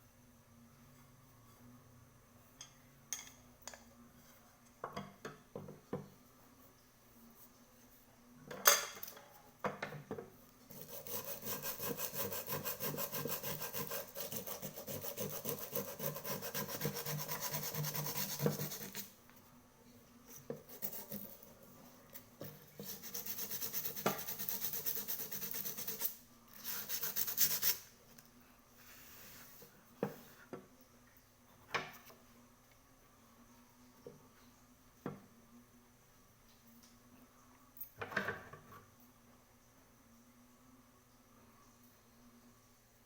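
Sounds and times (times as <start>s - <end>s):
hand tool scraping metal: 10.7s - 19.1s.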